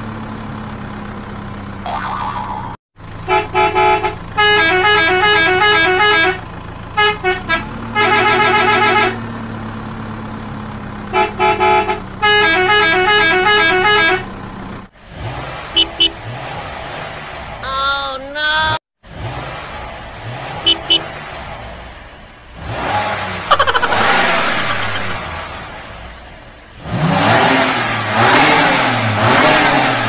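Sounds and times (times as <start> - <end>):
musical horn tune: 15.8 - 16.2, 20.7 - 21.1
vehicle engine idling: 15.8 - 16.2, 20.6 - 21.2.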